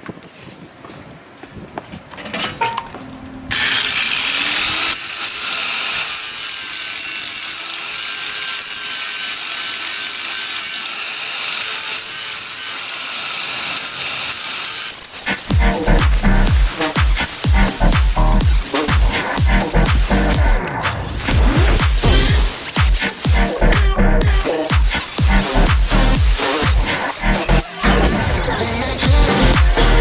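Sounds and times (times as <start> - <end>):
electric power sander grinding: 3.5 - 30.0.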